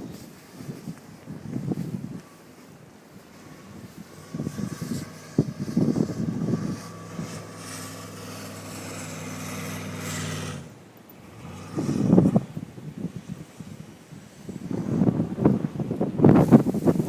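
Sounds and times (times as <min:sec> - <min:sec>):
wind buffeting microphone: 0:00.0 - 0:17.0
vehicle engine running: 0:03.2 - 0:12.8.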